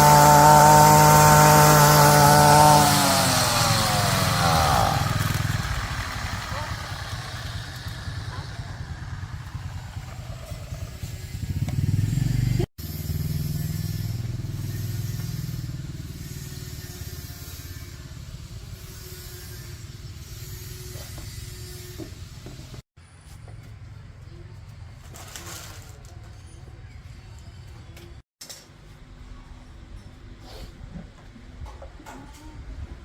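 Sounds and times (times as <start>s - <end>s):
motorcycle engine revving and idling: 0.0s - 22.8s.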